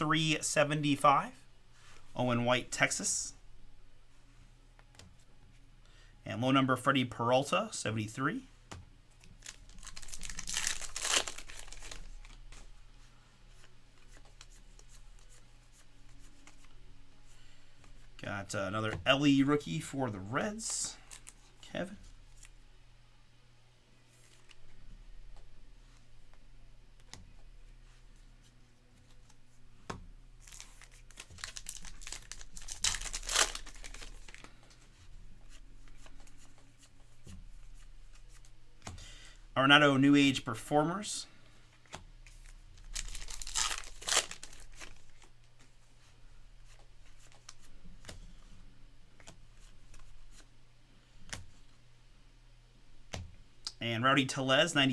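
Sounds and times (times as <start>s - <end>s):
cards being handled: 8.7s - 12.8s, 13.5s - 18.1s, 27.0s - 39.0s, 41.7s - 50.5s
wrapper crinkling and tearing: 9.4s - 12.5s, 30.4s - 34.5s, 42.4s - 45.3s.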